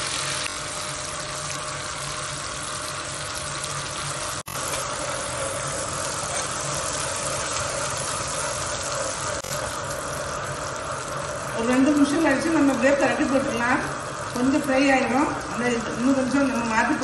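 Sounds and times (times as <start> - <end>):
pumpkin slices sizzling in oil: 0.0 - 17.0
spatula turning food: 4.5 - 14.8.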